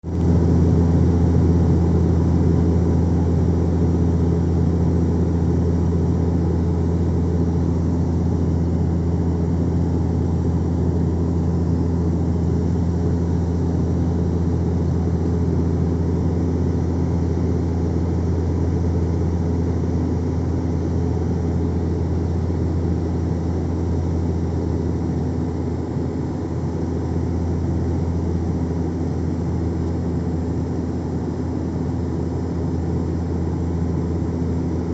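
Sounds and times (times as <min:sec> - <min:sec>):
airplane cabin drone: 0:00.0 - 0:34.9.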